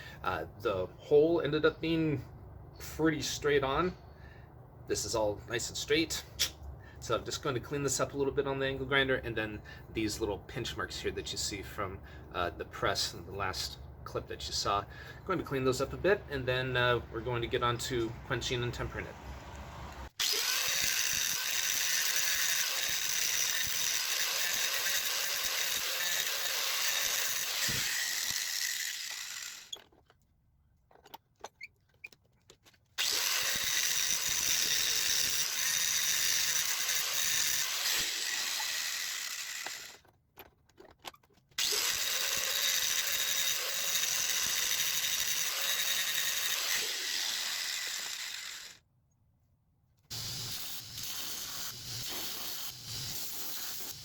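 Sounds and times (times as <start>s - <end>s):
angle grinder grinding steel: 20.2s - 30.0s, 33.0s - 40.1s, 41.6s - 48.8s, 50.1s - 54.0s.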